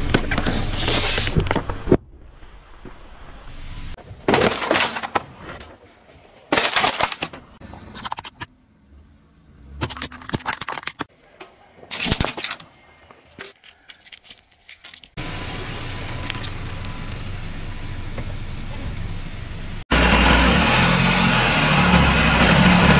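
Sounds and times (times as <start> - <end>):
objects crushed under car tyre: 4.2 - 5.6, 6.5 - 7.4
sharp crackles: 13.5 - 17.8.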